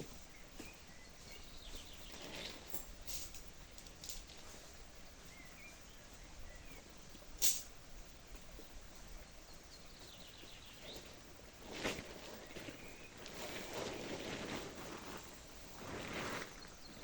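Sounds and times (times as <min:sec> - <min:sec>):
faint bird chirps: 0:00.0 - 0:02.6, 0:04.5 - 0:11.3.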